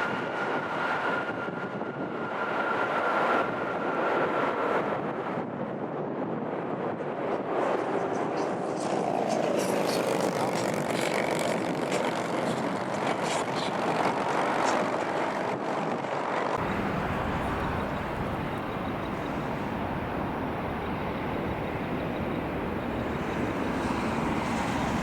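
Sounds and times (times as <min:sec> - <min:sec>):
jet engines roaring: 0:16.3 - 0:25.0.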